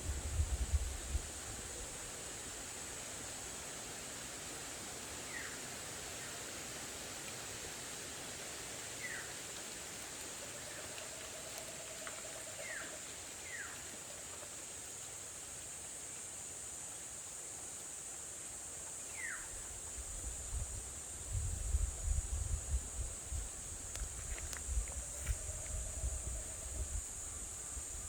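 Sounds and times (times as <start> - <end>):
wind on microphone: 0.0 - 2.0, 20.0 - 28.0
high-pitched hiss: 0.0 - 28.0.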